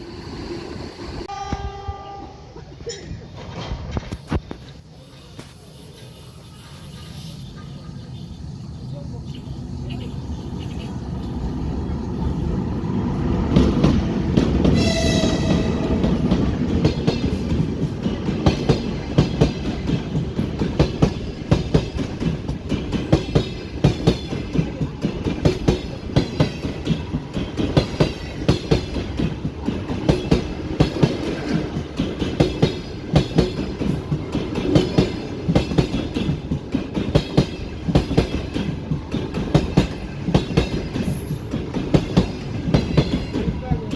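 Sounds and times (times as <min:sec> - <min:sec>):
train horn blast: 0:01.2 - 0:02.6, 0:14.6 - 0:16.6
train wheels clattering: 0:13.4 - 0:43.9.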